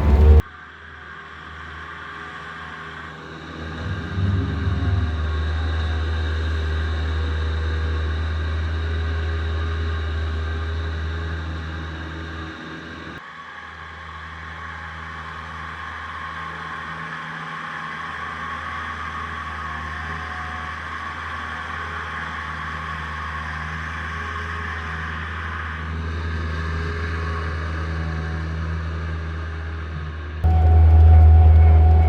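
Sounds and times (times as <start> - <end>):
diesel engine droning: 0.0 - 0.4, 3.7 - 13.2, 30.4 - 32.0.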